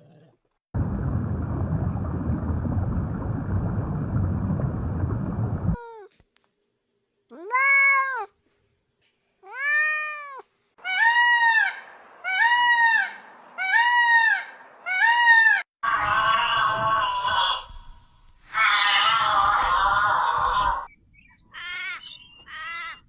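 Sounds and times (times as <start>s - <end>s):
cat meowing: 7.3s - 8.4s, 9.4s - 10.5s.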